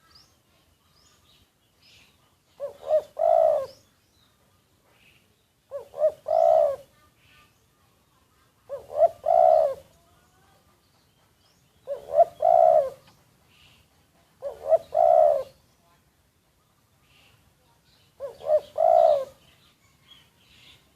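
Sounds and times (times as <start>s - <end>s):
faint bird chirps: 0.0s - 20.9s
dove cooing: 2.5s - 3.8s, 5.7s - 6.9s, 8.6s - 9.9s, 11.8s - 13.2s, 14.4s - 15.6s, 18.2s - 19.4s.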